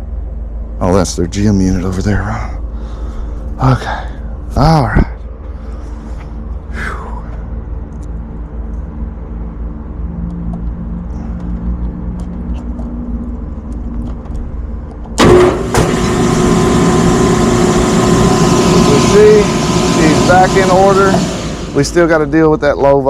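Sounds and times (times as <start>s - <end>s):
hvac equipment humming: 0.0s - 10.0s, 10.6s - 23.0s
hvac unit starting up: 15.1s - 23.0s.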